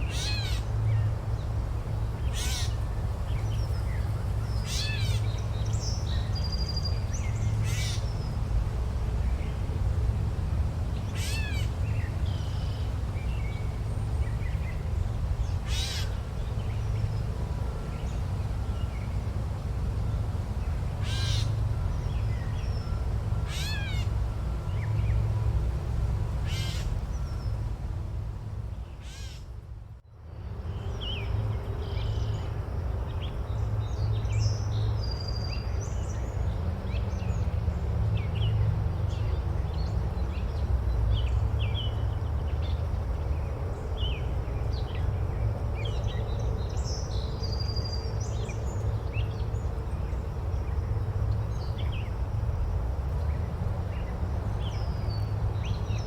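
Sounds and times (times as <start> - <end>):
bird giving harsh calls: 0.1 - 0.6, 2.3 - 2.8, 21.0 - 21.5, 23.5 - 24.1, 26.4 - 26.9, 29.0 - 29.4.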